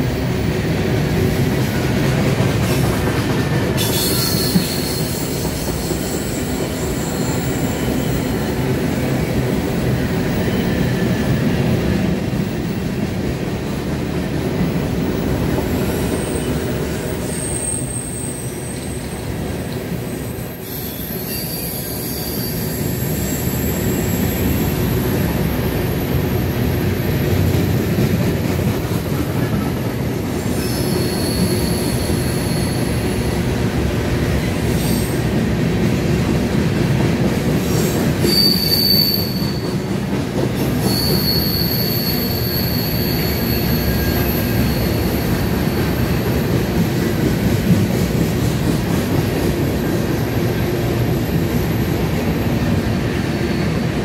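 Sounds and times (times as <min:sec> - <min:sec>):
freight train wheels rumbling: 0:00.0 - 0:54.0
high-pitched wheel squeals: 0:03.8 - 0:08.6, 0:20.3 - 0:24.7, 0:30.5 - 0:33.3, 0:37.8 - 0:39.8, 0:40.8 - 0:45.3.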